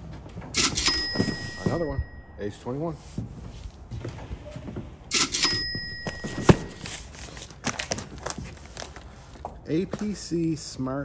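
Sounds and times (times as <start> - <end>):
knocks and clicks of boxes: 0.4 - 2.2, 5.2 - 7.0
cardboard scraping: 6.1 - 9.4.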